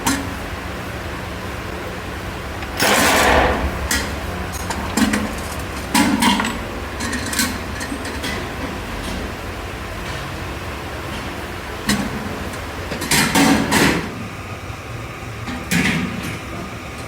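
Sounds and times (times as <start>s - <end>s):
low machine hum: 0.0s - 17.0s
loud rush of noise: 2.8s - 5.8s.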